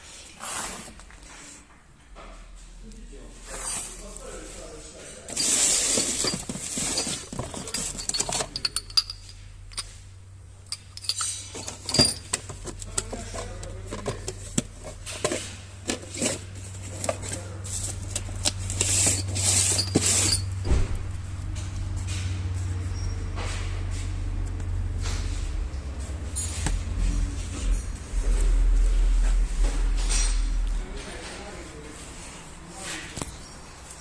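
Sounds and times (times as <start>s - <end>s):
low steady hum: 2.5s - 34.0s
metal tools clinking: 5.3s - 10.0s, 10.6s - 20.7s.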